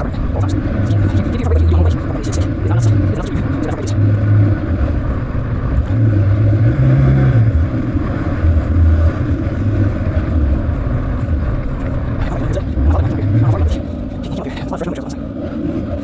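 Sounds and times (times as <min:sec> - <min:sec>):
dirt bike engine revving: 0:00.0 - 0:10.6.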